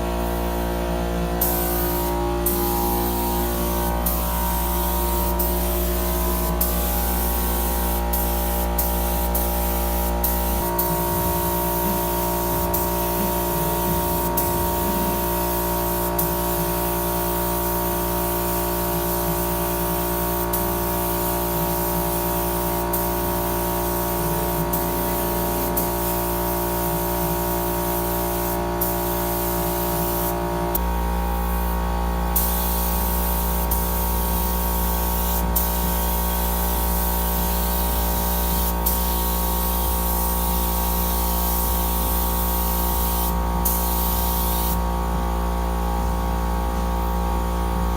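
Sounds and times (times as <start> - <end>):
paint spray gun hissing: 1.4 - 30.4, 31.4 - 44.8.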